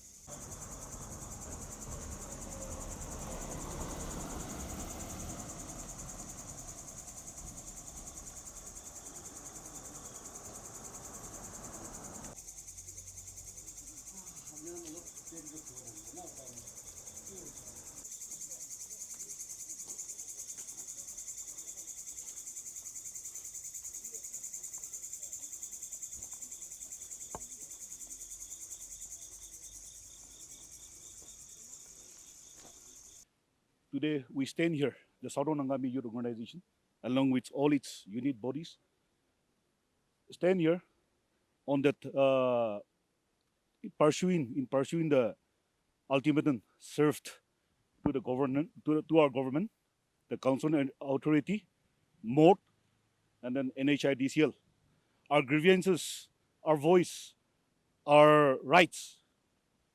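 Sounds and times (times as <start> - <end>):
insect chorus trilling: 0.0 - 33.2.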